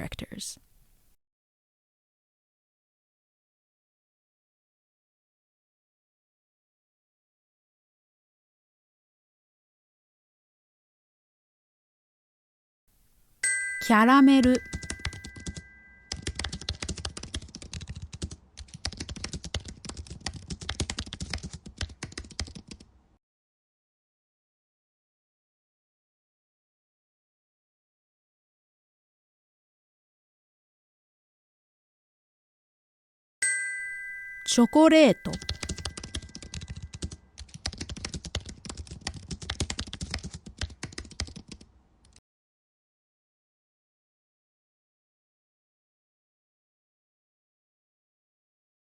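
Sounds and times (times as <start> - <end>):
typing on computer keyboard: 14.4 - 22.9, 35.3 - 42.2.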